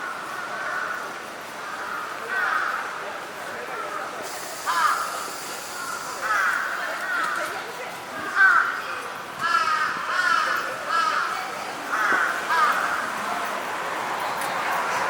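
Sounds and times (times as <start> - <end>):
crows cawing: 0.0 - 2.9, 4.7 - 7.5, 8.3 - 8.8, 9.4 - 13.2.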